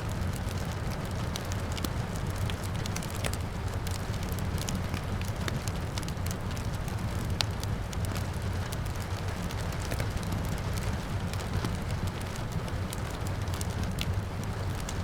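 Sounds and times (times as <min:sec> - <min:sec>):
low rumble of fire: 0:00.0 - 0:15.0
soft hiss of rain: 0:00.0 - 0:15.0
wood fire crackling and popping: 0:00.0 - 0:15.0.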